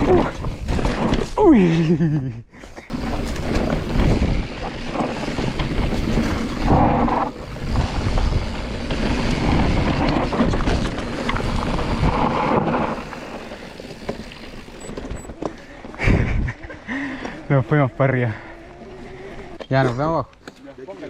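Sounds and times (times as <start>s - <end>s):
bike rattling: 0.0s - 21.0s
tyres on loose dirt: 0.0s - 21.0s
wind rushing over microphone: 3.6s - 13.1s.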